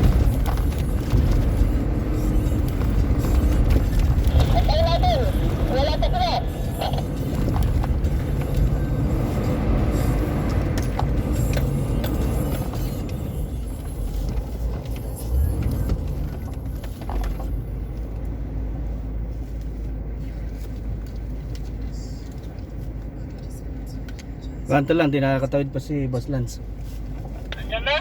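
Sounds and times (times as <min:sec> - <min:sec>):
knocks and rattles: 0:00.0 - 0:05.8
vehicle engine and tyres rumbling: 0:00.0 - 0:28.0.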